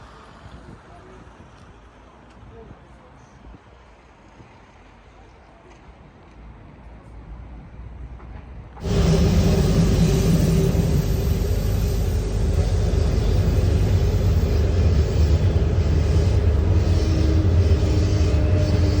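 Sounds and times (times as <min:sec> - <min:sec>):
moving train rumble: 0:08.3 - 0:19.0
steady hum tones: 0:08.8 - 0:19.0.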